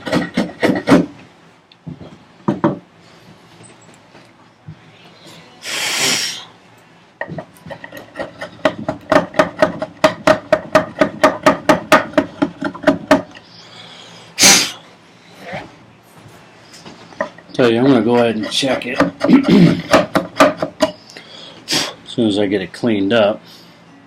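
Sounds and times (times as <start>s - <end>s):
hand tool rasping wood: 0.0s - 1.1s, 7.7s - 13.2s, 17.6s - 21.0s.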